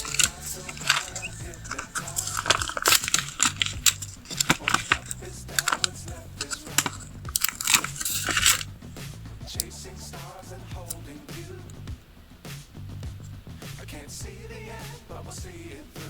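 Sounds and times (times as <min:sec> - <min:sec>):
paper sheets crinkling: 0:00.0 - 0:08.6.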